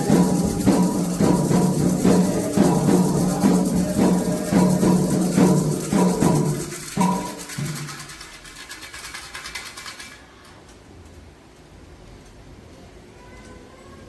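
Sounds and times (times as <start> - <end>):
hand drums: 0.0 - 8.6
shaken rattle: 0.0 - 10.5
faint room noise: 0.0 - 14.0.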